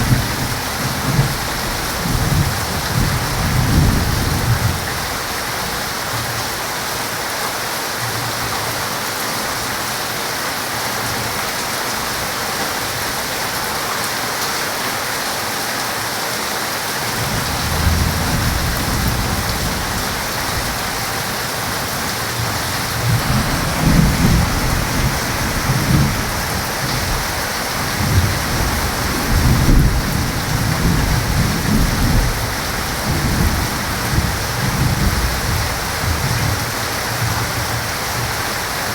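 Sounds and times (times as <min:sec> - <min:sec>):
thunder rumbling: 0:00.0 - 0:05.3, 0:17.1 - 0:37.6
heavy rain pouring: 0:00.0 - 0:38.9.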